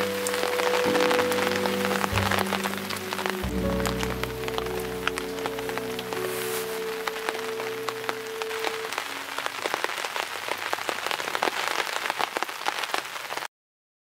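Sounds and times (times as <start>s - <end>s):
background music: 0.0s - 9.4s
rain drops striking: 0.0s - 13.5s.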